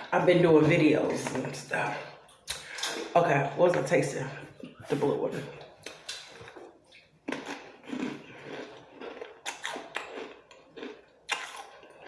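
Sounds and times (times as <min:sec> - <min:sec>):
person chewing crunchy chips: 0:05.5 - 0:12.0.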